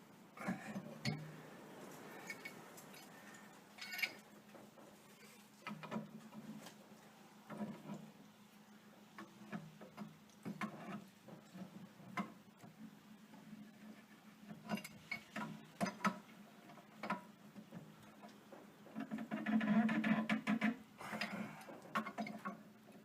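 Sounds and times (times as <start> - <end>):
pliers clicking and scraping on metal: 3.8 - 4.2.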